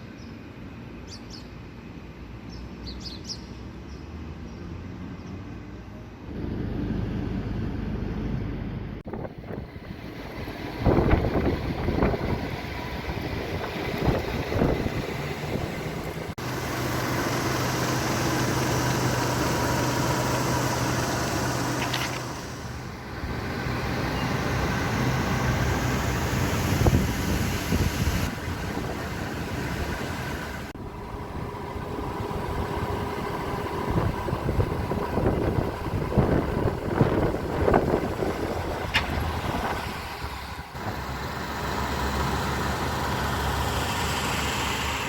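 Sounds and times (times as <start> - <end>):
car engine hum: 5.7 - 45.0
wind noise: 9.0 - 16.4, 23.1 - 40.6.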